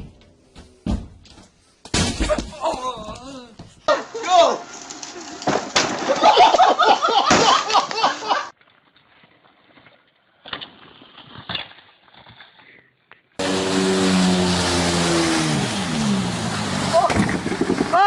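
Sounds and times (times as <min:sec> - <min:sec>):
vehicle engine running: 0:13.4 - 0:17.9.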